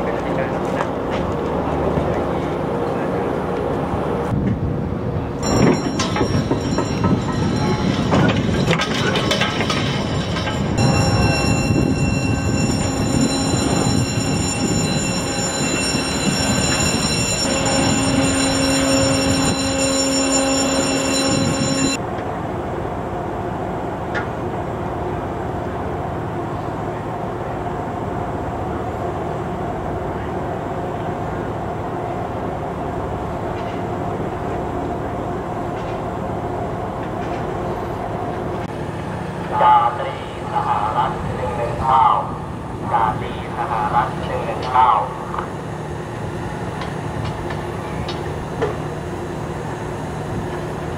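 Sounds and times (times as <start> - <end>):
loud machinery with whining tones: 5.6 - 22.0.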